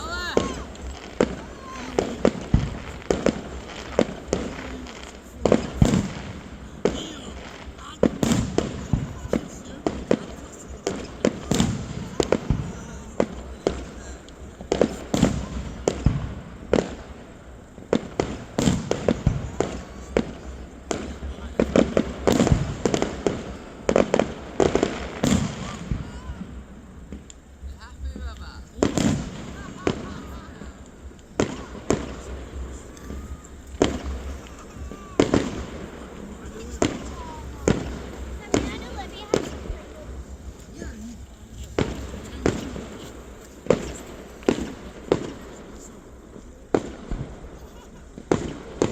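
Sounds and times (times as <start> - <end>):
fireworks bangs: 0.0 - 48.9.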